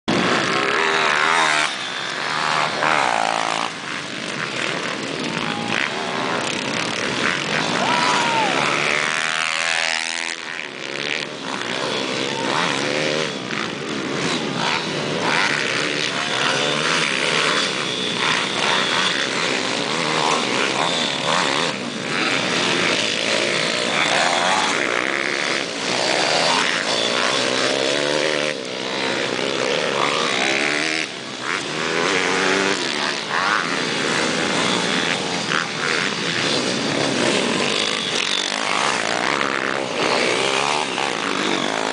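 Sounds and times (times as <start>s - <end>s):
small motorbike engines revving: 0.0s - 41.9s.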